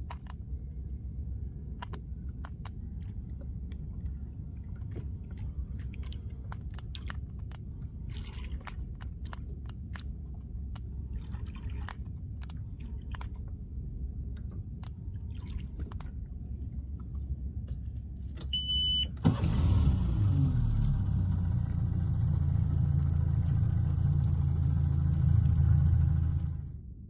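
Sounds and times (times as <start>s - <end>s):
short electronic beep: 18.6s - 19.1s
engine starting and idling: 18.6s - 26.8s
low rumble: 19.8s - 27.0s.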